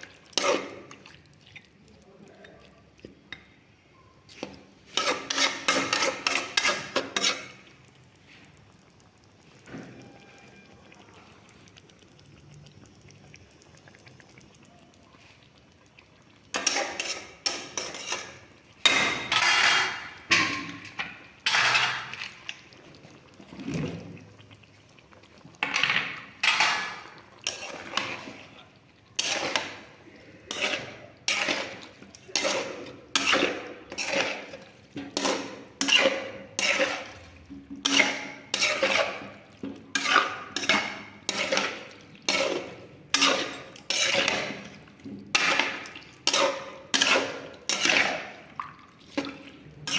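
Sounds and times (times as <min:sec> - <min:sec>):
metal utensil scraping a pot: 0:00.0 - 0:00.9, 0:04.4 - 0:07.8, 0:16.5 - 0:22.6, 0:25.6 - 0:49.9.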